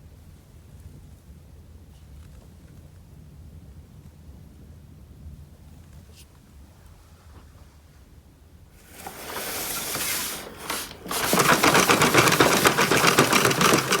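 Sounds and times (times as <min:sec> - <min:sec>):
toy cars rattling on track: 0:08.9 - 0:14.0.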